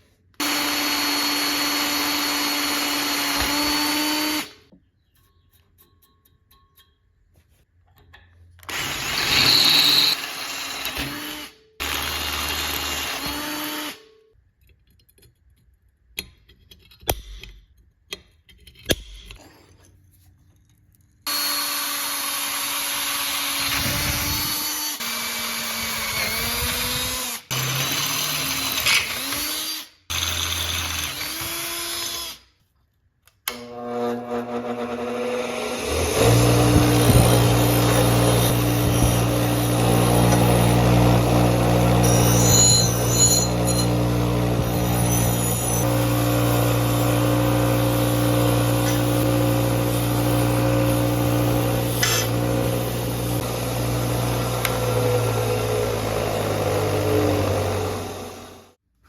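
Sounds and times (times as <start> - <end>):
handheld power tool running: 0.4 - 4.7, 8.6 - 14.0, 21.3 - 32.4, 33.5 - 58.8.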